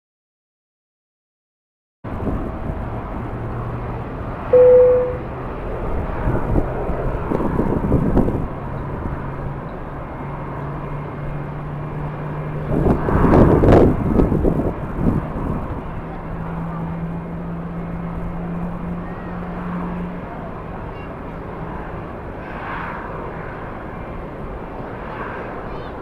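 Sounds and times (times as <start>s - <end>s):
wind buffeting microphone: 2.1s - 4.3s, 5.7s - 19.4s
aircraft engines humming: 2.1s - 26.0s
short loud beep: 4.6s - 5.3s.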